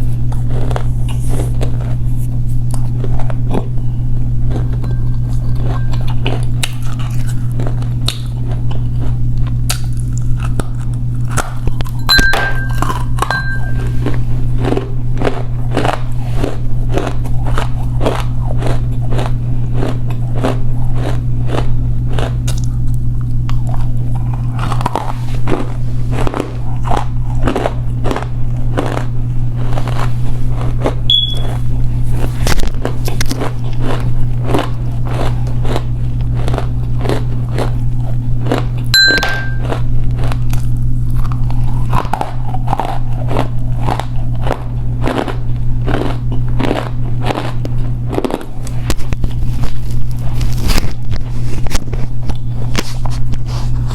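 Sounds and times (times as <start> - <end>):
clay being chewed: 0.0 - 53.9
constant low hum: 0.0 - 53.9
brief high beeps: 31.1 - 31.6.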